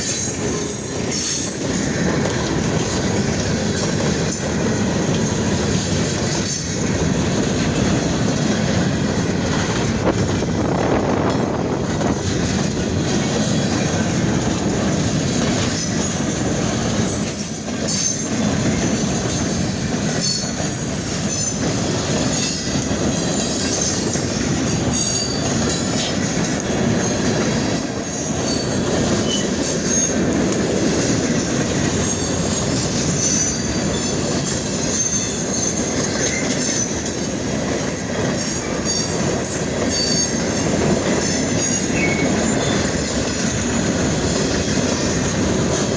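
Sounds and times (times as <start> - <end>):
high wheel squeals: 0.0 - 1.8, 32.0 - 43.1
clacking over rail joints: 0.0 - 45.9
freight cars rumbling on rails: 0.0 - 45.9.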